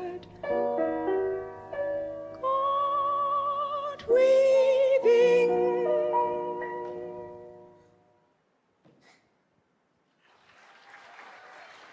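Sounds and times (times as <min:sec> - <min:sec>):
soft musical accompaniment: 0:00.0 - 0:08.2
woman singing with vibrato: 0:02.4 - 0:06.4.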